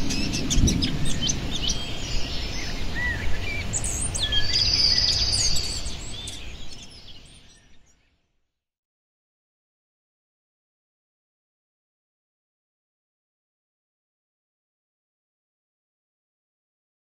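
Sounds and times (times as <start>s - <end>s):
birds singing and calling: 0.0s - 8.3s.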